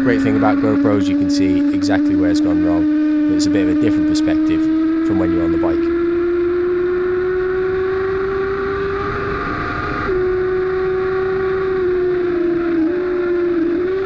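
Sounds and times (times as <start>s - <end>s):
motorcycle engine at high revs: 0.0s - 14.0s
rush of wind: 7.0s - 14.0s.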